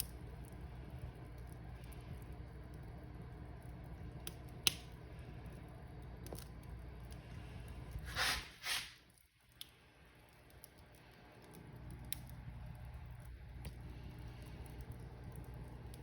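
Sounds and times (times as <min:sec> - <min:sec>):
fire crackling and popping: 0:00.0 - 0:16.0
fire rumbling: 0:00.0 - 0:16.0
loud hissing bursts: 0:08.1 - 0:09.0.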